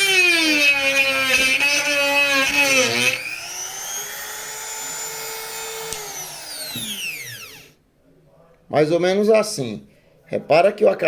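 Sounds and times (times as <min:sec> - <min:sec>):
rotary tool grinding plastic: 0:00.0 - 0:07.7.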